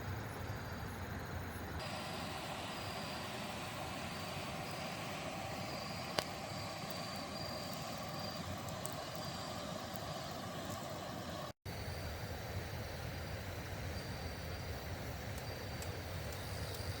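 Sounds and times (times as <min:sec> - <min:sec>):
stream water rushing: 0:01.8 - 0:11.6.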